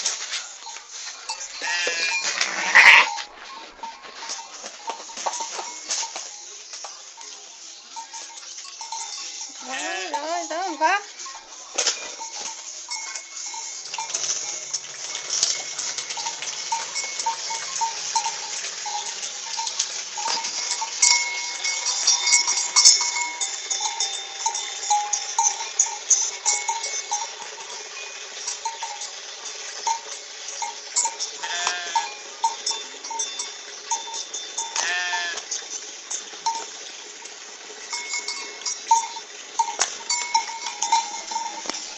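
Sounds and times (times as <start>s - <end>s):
livestock scuffling: 0.0s - 41.9s
small bell jangling: 0.0s - 41.9s
wavering animal calls: 1.6s - 3.2s, 31.4s - 32.1s.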